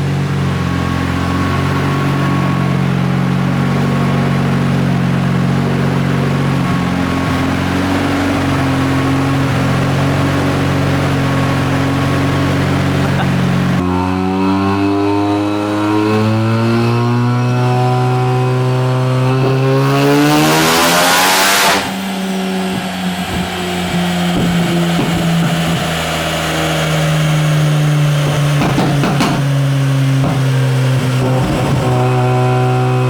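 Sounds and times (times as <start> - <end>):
rotary engine revving: 0.0 - 33.0
engine exhaust pops and crackles: 22.7 - 32.6.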